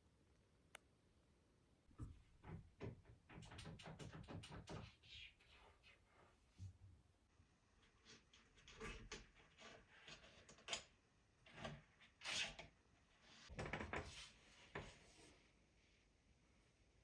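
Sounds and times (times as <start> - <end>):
knocks and taps on wooden door: 2.0 - 5.0.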